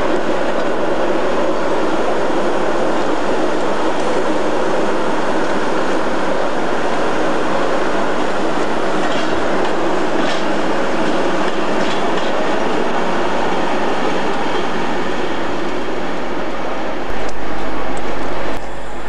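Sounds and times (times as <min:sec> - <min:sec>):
locomotive wheels rumbling on rails: 0:00.0 - 0:19.0
clicks over rail joints: 0:09.0 - 0:12.4.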